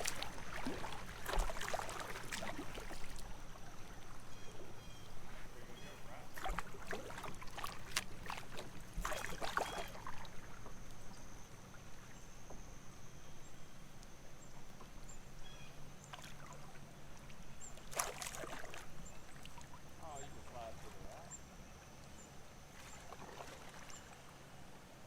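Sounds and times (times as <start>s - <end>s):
paddle strokes splashing: 0.0s - 10.7s, 16.1s - 21.3s, 22.7s - 24.3s
quiet water sounds: 0.0s - 25.0s.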